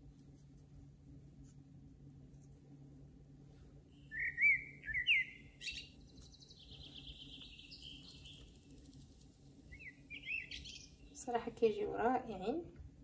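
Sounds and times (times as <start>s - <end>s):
songbird singing: 3.9s - 12.5s.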